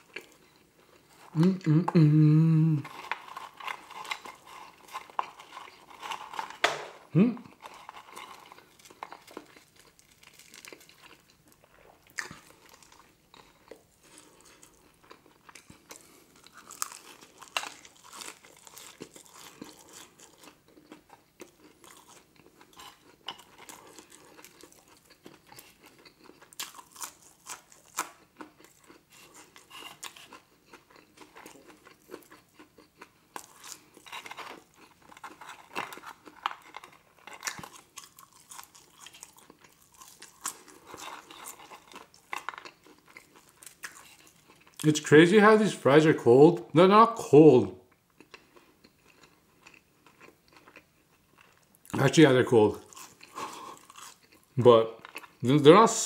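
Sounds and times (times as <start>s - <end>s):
chewing french fries: 0.0s - 46.0s, 47.6s - 56.0s
person humming: 1.3s - 2.9s, 7.1s - 7.5s.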